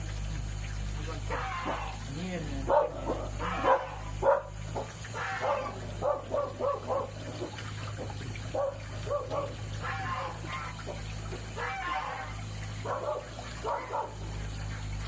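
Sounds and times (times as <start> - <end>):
dog barking and yapping: 2.7 - 7.5, 8.5 - 14.3.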